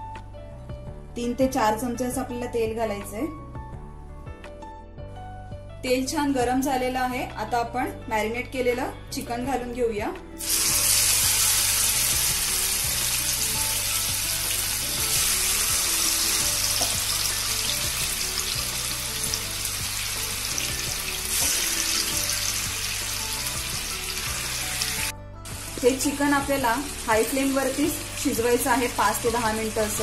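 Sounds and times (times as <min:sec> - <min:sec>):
background music: 0:00.0 - 0:30.0
chicken sizzling in oil: 0:10.4 - 0:30.0.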